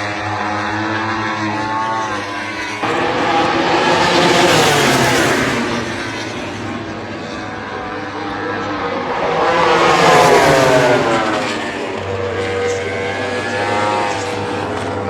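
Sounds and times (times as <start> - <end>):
racing motorcycle passing: 0.0 - 15.0
steady engine note: 2.8 - 14.1.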